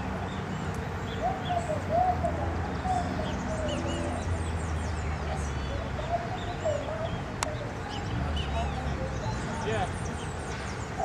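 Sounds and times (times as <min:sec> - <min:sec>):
low bird coos: 0:01.1 - 0:04.5, 0:05.6 - 0:08.1.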